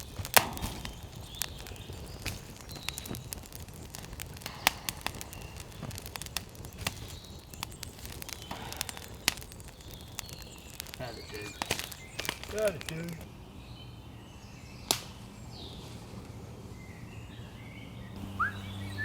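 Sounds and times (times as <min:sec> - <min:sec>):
low hiss: 0:00.0 - 0:13.2
campfire crackling and popping: 0:00.0 - 0:13.3, 0:14.9 - 0:15.1.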